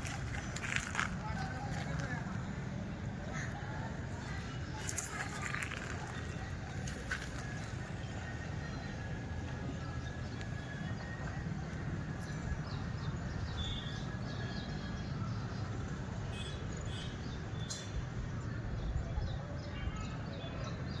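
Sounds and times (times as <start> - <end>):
birds chirping: 0.0 - 15.1.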